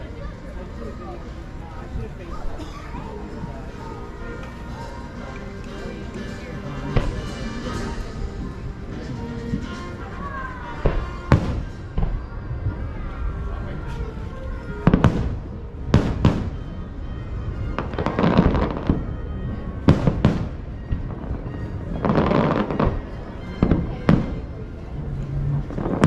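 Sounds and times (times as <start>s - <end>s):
fireworks crackling: 3.2s - 26.0s
fireworks booming: 6.8s - 9.8s, 10.8s - 12.8s, 14.6s - 16.8s, 17.7s - 24.7s, 25.4s - 26.0s.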